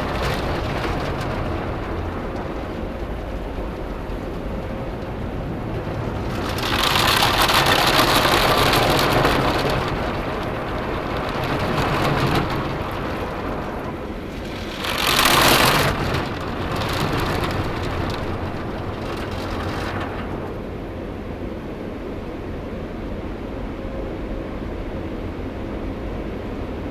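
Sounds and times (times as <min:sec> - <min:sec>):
water jets spraying on car: 0:00.0 - 0:20.8
car wash machinery rumble: 0:00.0 - 0:26.9.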